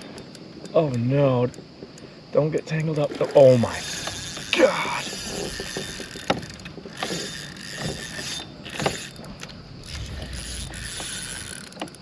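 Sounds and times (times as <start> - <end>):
fishing reel whirring: 3.1 - 12.0.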